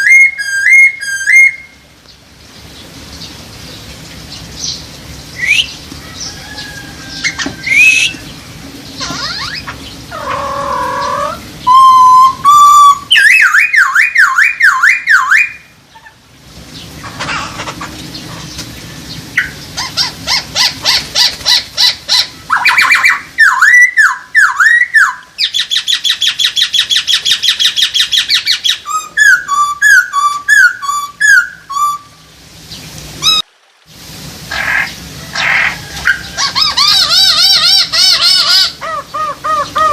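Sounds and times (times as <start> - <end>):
bird singing whistled phrases: 0.0 - 1.8, 5.4 - 5.8, 7.2 - 8.2, 10.9 - 15.7, 22.5 - 32.2.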